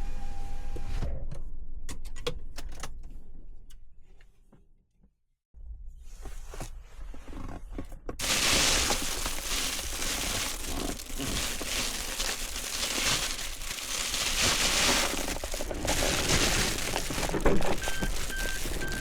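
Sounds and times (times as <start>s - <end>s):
wood fire crackling and hissing: 8.2s - 19.0s.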